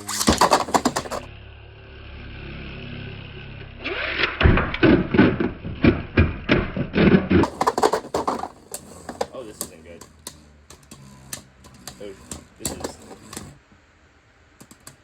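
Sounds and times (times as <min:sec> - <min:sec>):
spinning tops clashing: 0:00.0 - 0:01.3
spinning tops whirring: 0:00.0 - 0:01.3, 0:07.4 - 0:13.7.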